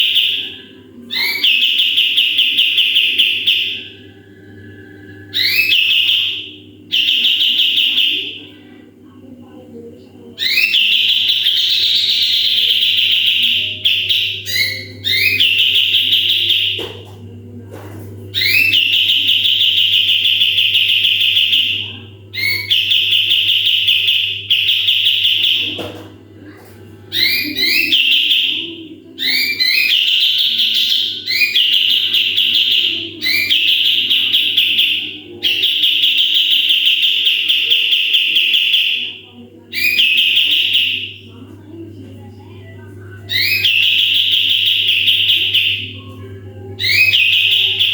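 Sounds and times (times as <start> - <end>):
songbird buzzing trills: 0.0 - 8.7, 10.3 - 17.0, 18.3 - 25.8, 42.8 - 47.9
steady low hum: 0.0 - 47.9.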